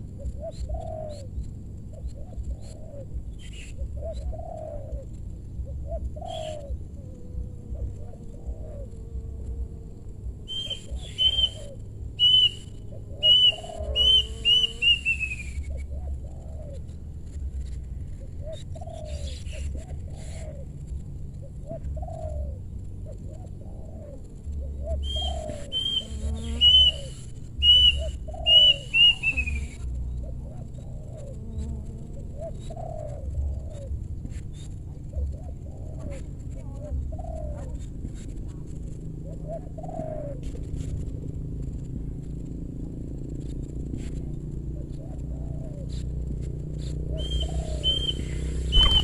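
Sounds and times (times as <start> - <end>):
doves cooing: 0.0 - 49.0
bird sharp high repeated notes: 10.5 - 15.6, 25.2 - 29.6, 47.2 - 49.0.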